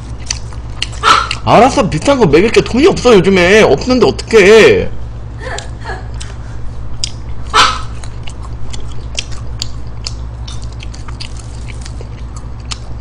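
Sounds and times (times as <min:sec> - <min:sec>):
chewing fries: 0:00.0 - 0:02.2, 0:06.1 - 0:13.0
low hum: 0:00.0 - 0:13.0
mouth and lip clicks: 0:00.1 - 0:01.5, 0:07.0 - 0:13.0.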